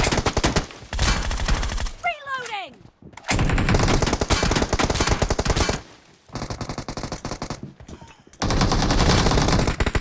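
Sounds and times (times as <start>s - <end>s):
video game automatic gunfire: 3.3s - 7.6s, 8.4s - 10.0s.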